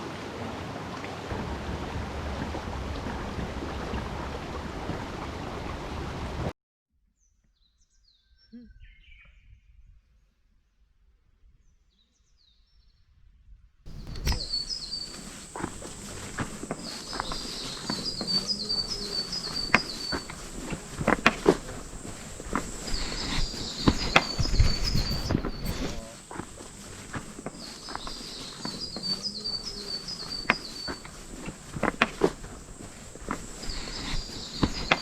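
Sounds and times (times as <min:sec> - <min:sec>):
mountain stream rushing: 0:00.0 - 0:06.5, 0:13.9 - 0:35.0
bird calls: 0:13.9 - 0:35.0
birds chirping: 0:13.9 - 0:35.0
steady high hiss: 0:13.9 - 0:35.0.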